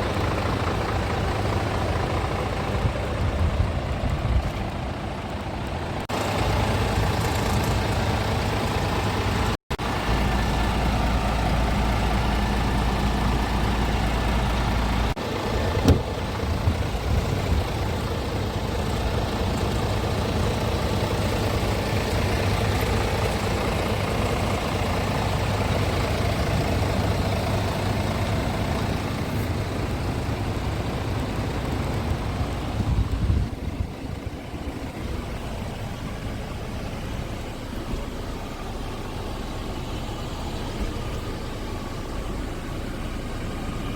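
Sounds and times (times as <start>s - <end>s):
diesel truck engine running: 0.0s - 43.9s.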